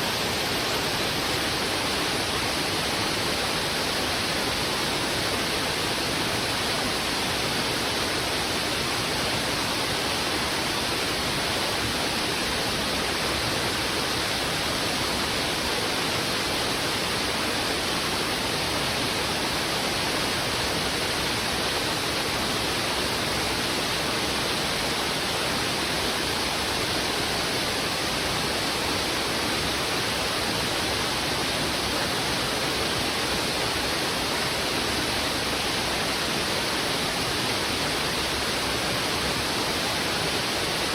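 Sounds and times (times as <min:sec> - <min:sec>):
river rushing over rocks: 0:00.0 - 0:40.9.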